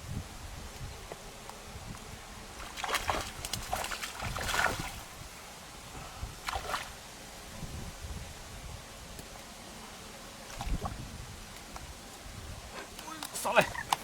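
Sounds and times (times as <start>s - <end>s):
wind rumble on microphone: 0.0s - 9.3s, 10.5s - 12.8s
water splashing: 2.6s - 5.1s, 6.4s - 7.0s, 10.5s - 11.0s.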